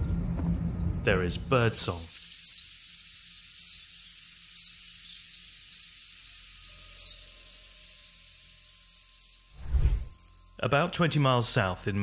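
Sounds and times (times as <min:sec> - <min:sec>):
bird chirping: 0:02.1 - 0:02.7, 0:03.6 - 0:03.8, 0:04.4 - 0:08.0, 0:08.8 - 0:10.6.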